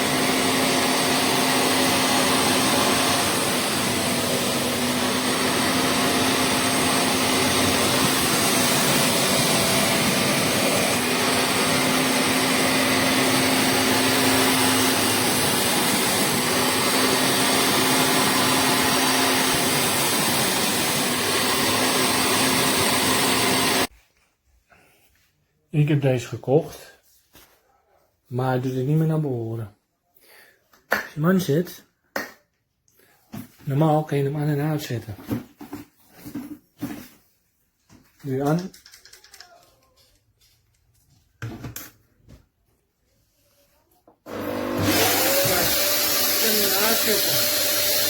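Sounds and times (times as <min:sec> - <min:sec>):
spot cleaner suction motor: 0:00.0 - 0:23.9, 0:44.3 - 0:48.0.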